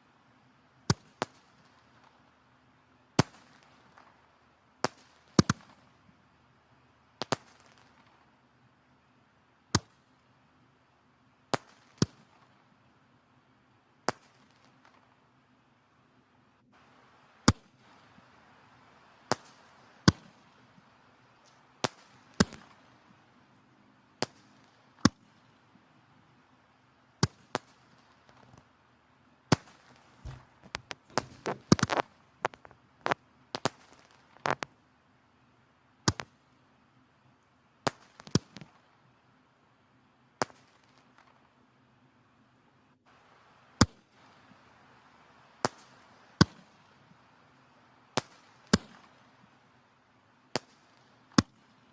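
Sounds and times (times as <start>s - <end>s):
soft hiss of flame: 16.7s - 26.5s, 29.5s - 34.8s, 43.0s - 51.9s
firewood crackling and popping: 16.8s - 23.4s, 27.2s - 28.7s, 29.5s - 34.8s, 36.1s - 36.4s, 37.9s - 38.8s, 43.1s - 47.3s.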